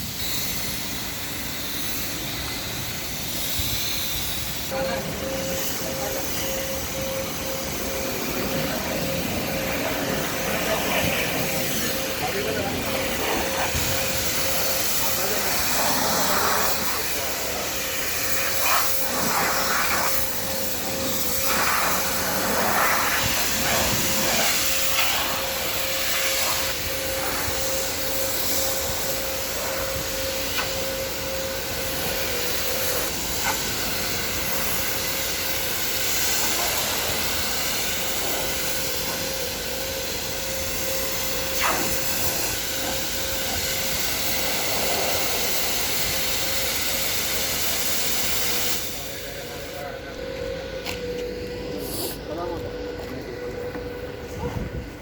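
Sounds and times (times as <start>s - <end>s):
car wash equipment hissing: 0.0s - 55.0s
machine whine: 0.0s - 55.0s.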